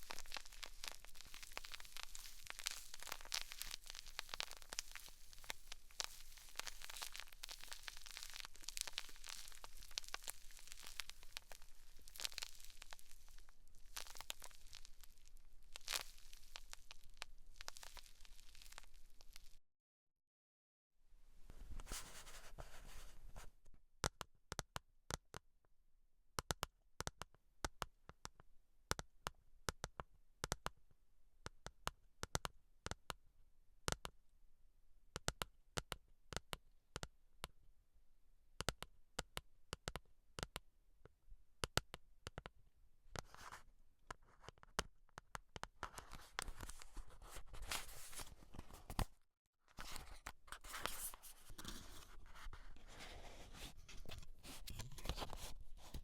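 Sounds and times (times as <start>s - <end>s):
scratching and rustling on scalp: 0.0s - 19.6s, 46.0s - 48.9s
sticky clicks and ticks: 38.6s - 40.6s.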